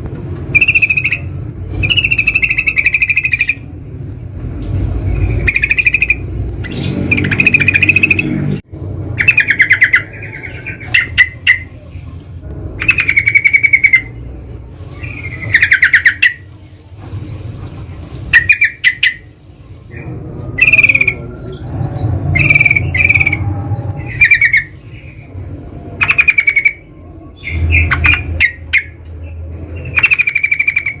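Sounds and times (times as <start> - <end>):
bulbuls chattering: 9.2 - 31.0
low rumble: 11.7 - 15.6, 19.5 - 26.1.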